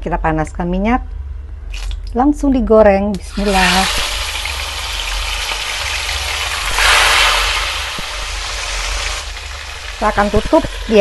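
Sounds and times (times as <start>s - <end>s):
eel deep-frying sizzle: 3.2s - 11.0s.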